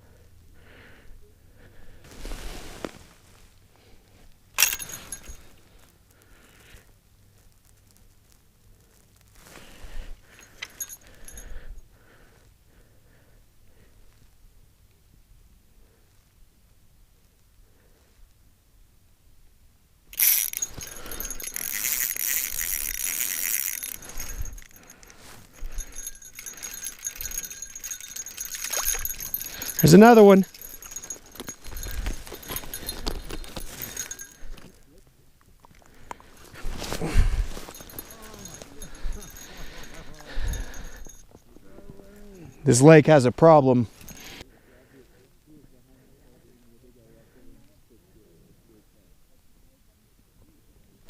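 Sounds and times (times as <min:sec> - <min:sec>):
jangling rattling clatter: 0:04.6 - 0:05.6, 0:10.2 - 0:11.6, 0:20.2 - 0:34.8, 0:36.7 - 0:42.6, 0:43.9 - 0:44.4
high ringing clink: 0:04.6 - 0:05.7, 0:10.2 - 0:11.9, 0:20.2 - 0:35.0, 0:36.8 - 0:44.5.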